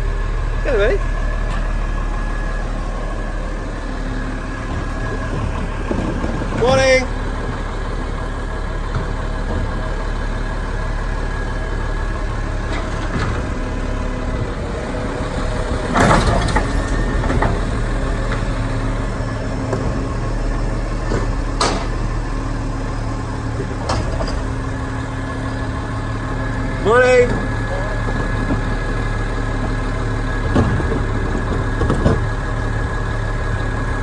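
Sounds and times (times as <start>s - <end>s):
garbage truck engine idling: 0.0s - 34.0s
sharp knocks and clatters: 21.1s - 22.0s.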